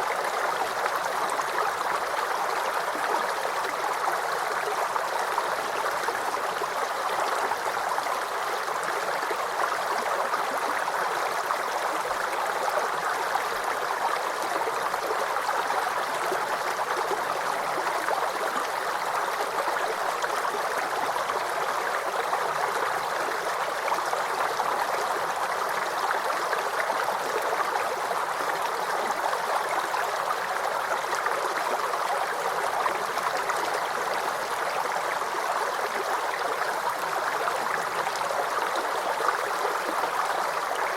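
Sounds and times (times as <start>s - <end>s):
creek babbling over stones: 0.0s - 40.9s.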